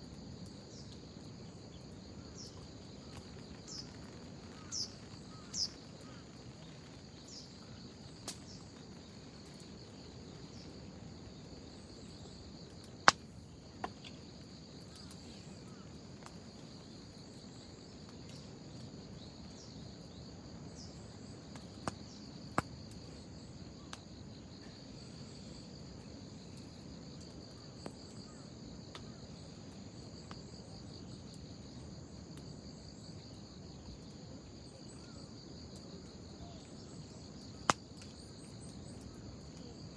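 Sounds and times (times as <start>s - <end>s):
insects chirping: 0.0s - 39.9s
wood fire crackling: 0.1s - 19.0s
fire popping: 2.5s - 10.6s, 11.8s - 16.9s.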